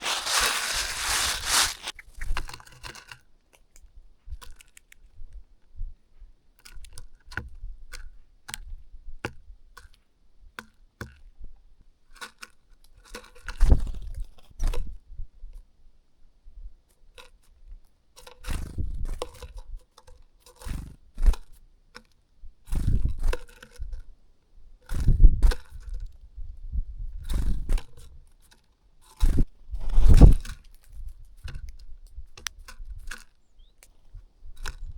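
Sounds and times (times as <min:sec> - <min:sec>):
birds pecking and scratching: 0:00.0 - 0:02.0.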